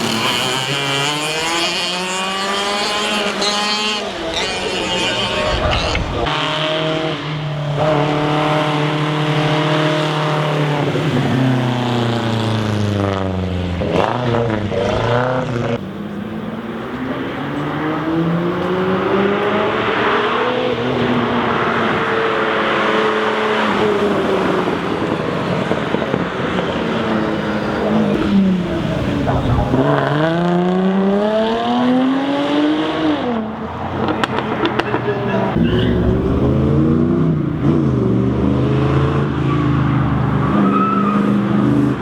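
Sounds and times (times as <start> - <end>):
car accelerating past: 0.0 - 42.0
sports car engine revving: 0.0 - 42.0.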